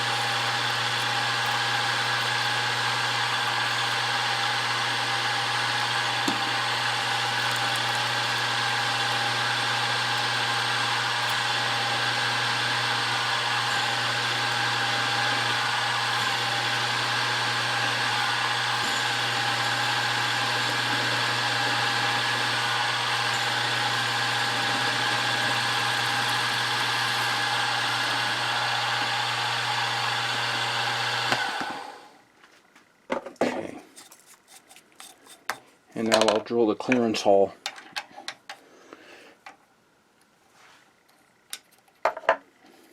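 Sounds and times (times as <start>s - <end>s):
milling machine drilling: 0.0s - 32.1s.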